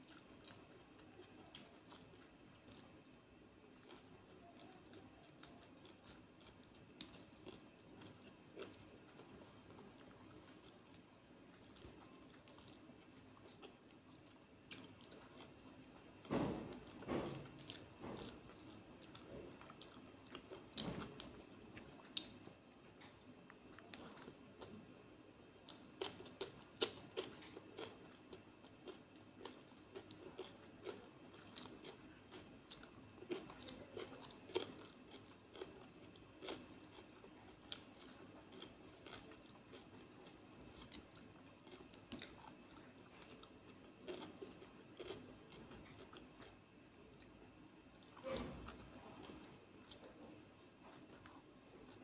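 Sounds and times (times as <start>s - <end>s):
close-up chewing and crunching: 0.0s - 52.0s.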